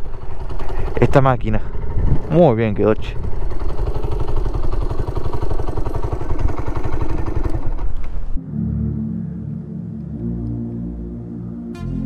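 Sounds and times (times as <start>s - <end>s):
music: 8.4s - 12.0s.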